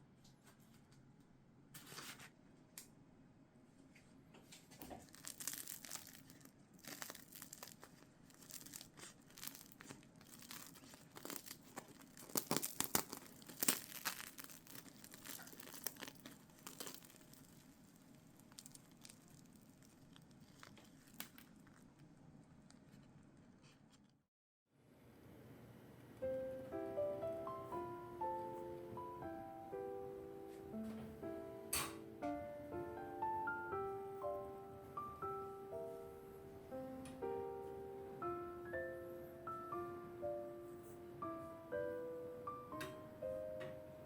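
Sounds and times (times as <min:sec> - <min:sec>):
crinkly packaging rustling: 0:04.6 - 0:24.0.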